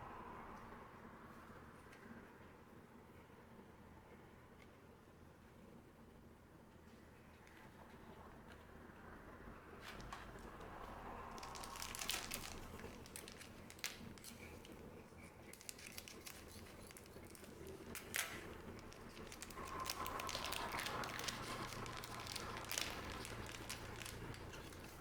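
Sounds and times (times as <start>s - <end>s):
wrappers crinkling and tearing: 11.3s - 25.0s.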